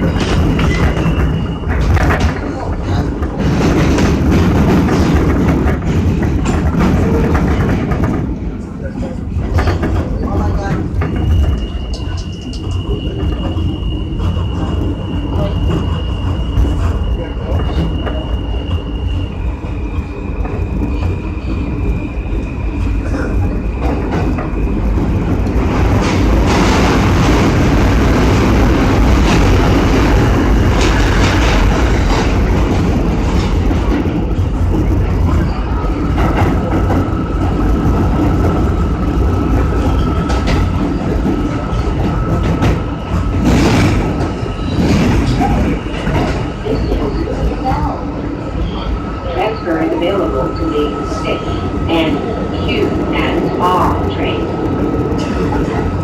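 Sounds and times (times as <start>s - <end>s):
subway wheels rumbling on track: 0.0s - 56.0s
rail joint clicks: 9.4s - 18.4s.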